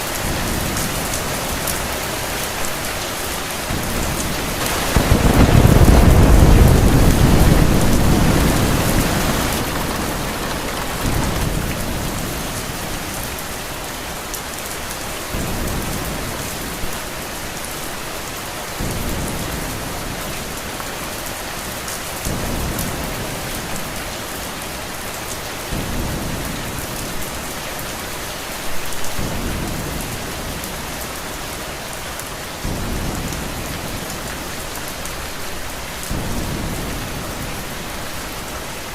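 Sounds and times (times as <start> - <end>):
steady rain falling: 0.0 - 38.9
thunder rumble: 3.6 - 13.7.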